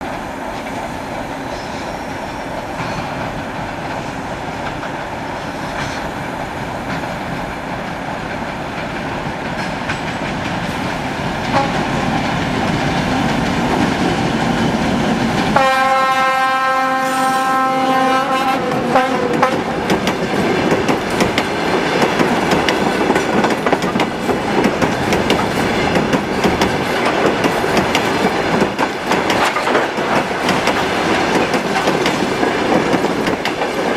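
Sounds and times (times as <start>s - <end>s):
diesel locomotives running: 0.0s - 33.9s
wheels clicking over rail joints: 2.5s - 15.6s, 18.8s - 33.9s
locomotive horn blast: 11.5s - 11.9s, 15.6s - 19.8s.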